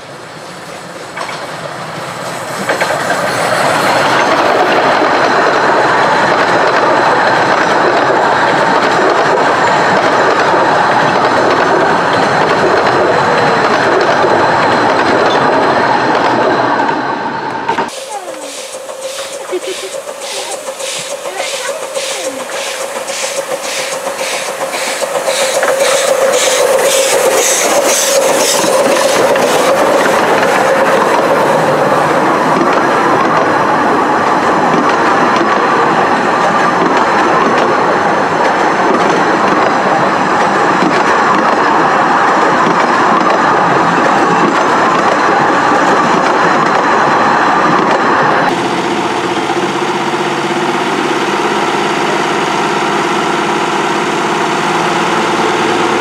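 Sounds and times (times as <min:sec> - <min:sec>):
train wheels clattering on rails: 0:00.0 - 0:56.0
diesel locomotive engine idling: 0:17.4 - 0:38.6.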